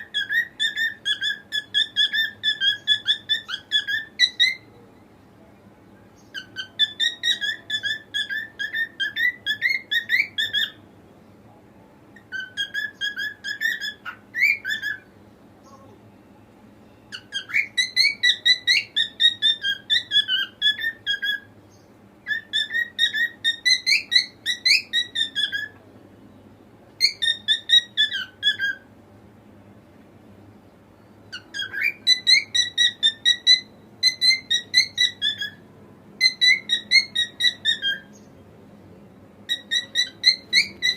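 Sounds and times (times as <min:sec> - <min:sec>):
cockatiel whistling: 0:00.0 - 0:04.7, 0:06.3 - 0:10.8, 0:12.2 - 0:15.1, 0:17.1 - 0:21.5, 0:22.2 - 0:25.8, 0:27.0 - 0:28.9, 0:31.3 - 0:35.6, 0:36.2 - 0:38.2, 0:39.5 - 0:40.9.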